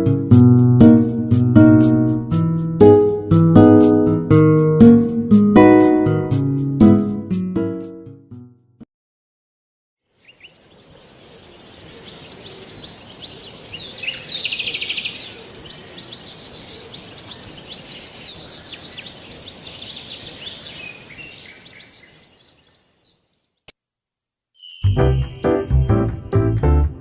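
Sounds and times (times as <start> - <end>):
background hiss: 10.1 - 23.4
small birds chirping: 10.1 - 23.8
bird fast trill: 10.2 - 23.2.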